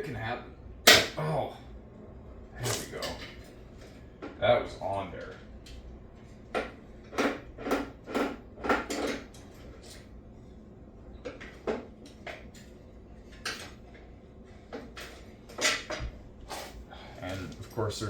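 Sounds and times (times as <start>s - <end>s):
hand tools and parts clattering: 7.1s - 10.1s, 13.3s - 18.0s.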